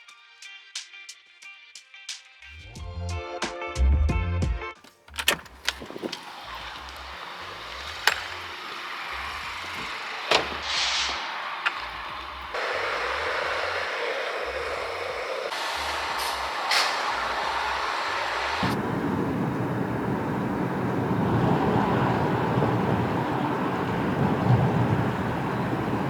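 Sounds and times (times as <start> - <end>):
sharp clicks: 4.8 - 15.6
road vehicle noise: 4.8 - 26.0
brief hiss: 5.9 - 18.8.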